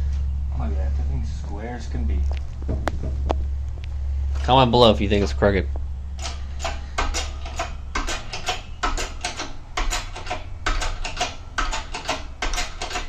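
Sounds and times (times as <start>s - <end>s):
hydraulic press pumping clicks: 6.2s - 13.0s.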